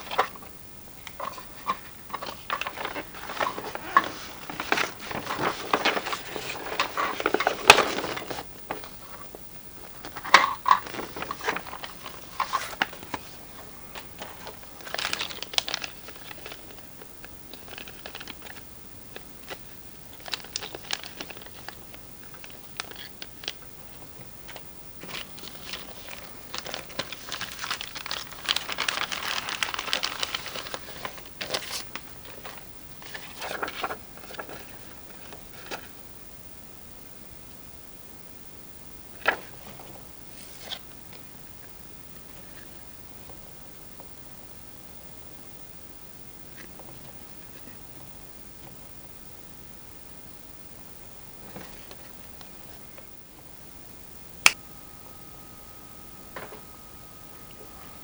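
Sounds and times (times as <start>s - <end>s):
packaging crinkling and rustling: 0.0s - 36.0s, 39.1s - 41.3s, 51.4s - 53.1s, 54.4s - 58.0s.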